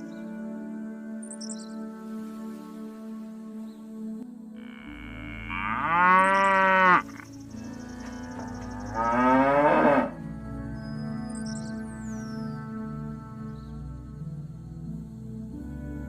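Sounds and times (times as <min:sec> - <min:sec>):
soft background music: 0:00.0 - 0:16.0
cow mooing: 0:04.6 - 0:07.3, 0:08.0 - 0:10.2.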